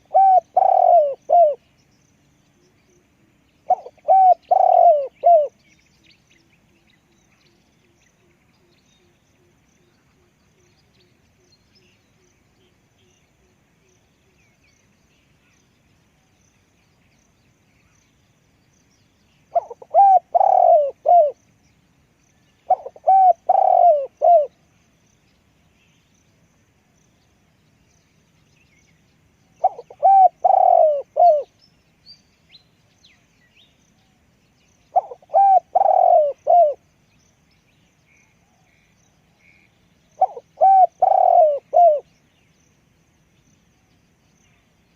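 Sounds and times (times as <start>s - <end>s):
dove cooing: 0.0s - 1.6s, 3.7s - 5.6s, 19.5s - 21.4s, 22.7s - 24.6s, 29.6s - 31.5s, 34.9s - 36.8s, 40.2s - 42.1s.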